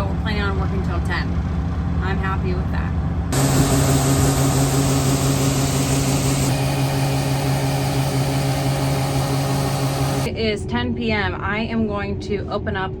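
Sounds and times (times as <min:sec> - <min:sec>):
large engine running steadily: 0:00.0 - 0:10.3.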